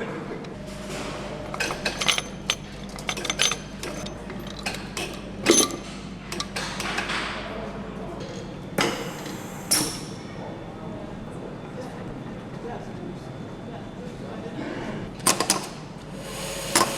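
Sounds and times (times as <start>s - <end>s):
factory hum: 0.0s - 16.9s
metal clank: 0.8s - 6.9s
metal tools clinking: 1.5s - 6.8s.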